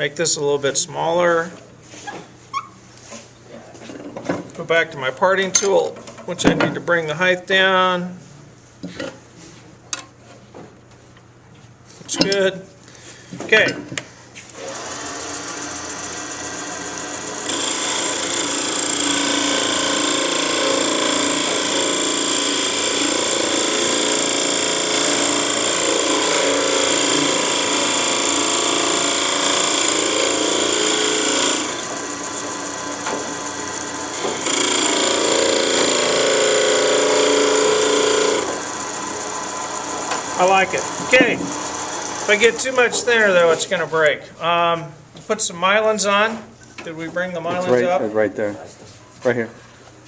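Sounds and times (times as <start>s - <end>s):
wood lathe running: 14.6s - 43.5s
turning tool cutting wood: 14.6s - 43.6s.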